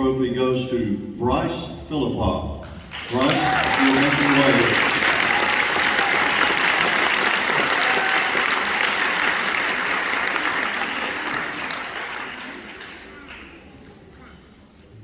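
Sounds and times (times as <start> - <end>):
audience applauding: 2.8 - 14.1.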